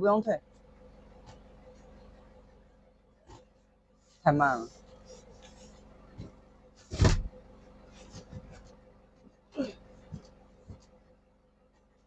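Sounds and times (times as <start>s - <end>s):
heavy thud of carton: 6.9s - 7.3s.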